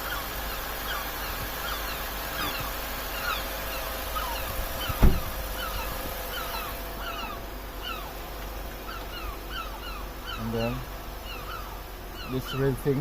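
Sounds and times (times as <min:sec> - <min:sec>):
birds chirping: 0:00.0 - 0:13.0
low steady rumble: 0:00.0 - 0:13.0
loud dull thump: 0:04.6 - 0:06.1.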